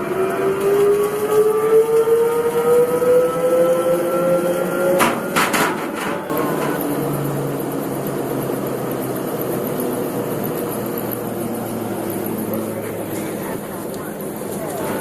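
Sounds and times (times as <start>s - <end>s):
ventilation fan rushing air: 4.4s - 15.0s.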